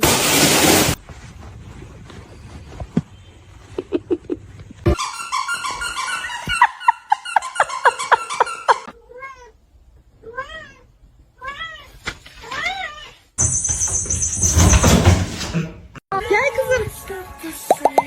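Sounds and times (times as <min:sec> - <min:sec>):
cat meowing: 0:10.2 - 0:13.2.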